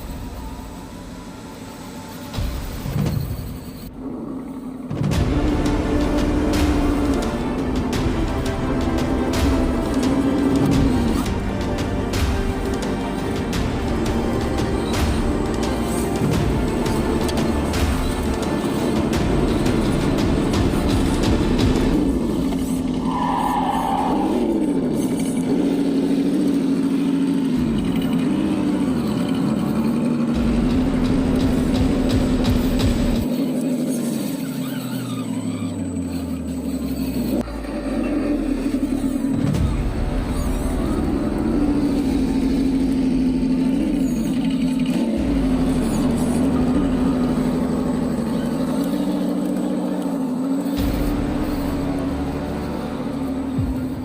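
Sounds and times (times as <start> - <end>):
rc truck motor whining: 14.4 - 39.4
toy truck motor whining: 33.3 - 39.4.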